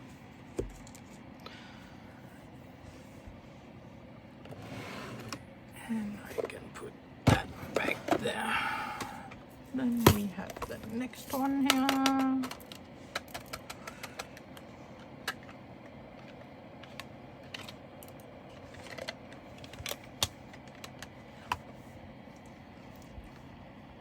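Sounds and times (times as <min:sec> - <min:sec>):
plastic containers clicking and rattling: 0:10.0 - 0:14.5.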